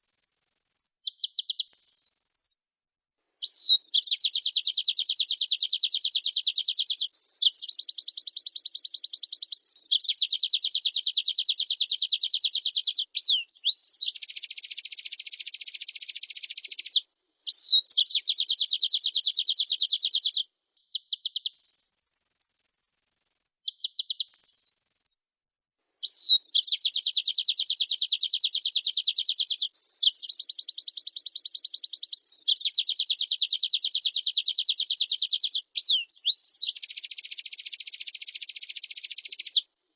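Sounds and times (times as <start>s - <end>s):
high hissing bird phrases: 0.0s - 0.9s, 1.7s - 2.6s, 21.6s - 23.5s, 24.3s - 25.2s
bird singing fast trills: 0.0s - 2.6s, 3.4s - 25.2s, 26.1s - 39.6s
bird whistles sliding upward: 1.7s - 2.6s.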